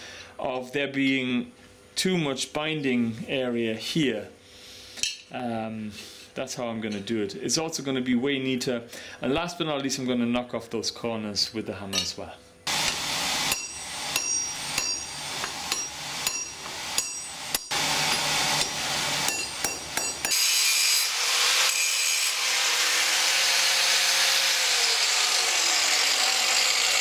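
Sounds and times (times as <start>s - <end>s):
hammer striking steel on anvil: 12.7s - 20.5s
power tool grinding steel: 12.7s - 27.0s.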